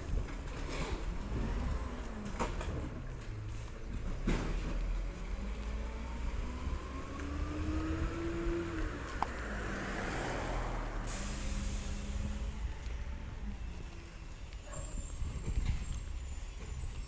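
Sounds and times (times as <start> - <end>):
garbage truck engine rumble: 0.0 - 17.0
hiss: 11.0 - 12.6.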